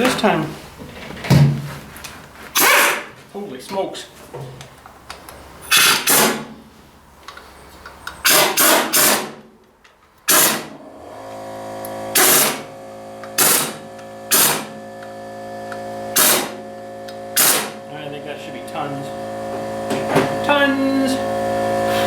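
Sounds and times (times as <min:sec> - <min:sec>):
impact wrench bursts: 0:02.5 - 0:03.1, 0:05.7 - 0:06.6, 0:08.1 - 0:09.5, 0:10.2 - 0:10.9, 0:11.6 - 0:17.9
steady hum: 0:10.7 - 0:22.0.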